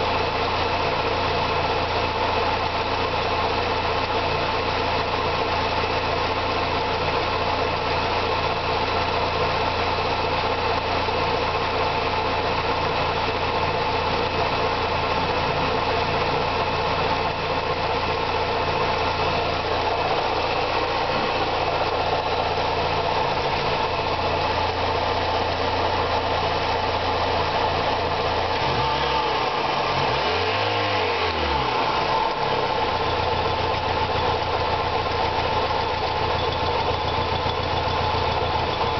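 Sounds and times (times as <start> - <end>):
car engine idling: 0.0 - 38.9
engine revving: 18.9 - 34.7.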